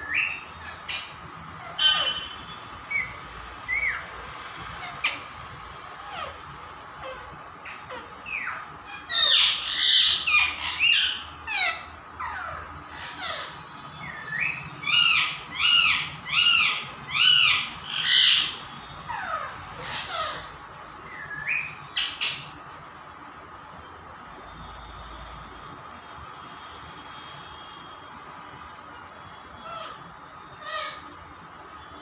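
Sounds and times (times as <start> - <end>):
parrot squawking: 0.0 - 22.6, 29.6 - 31.2.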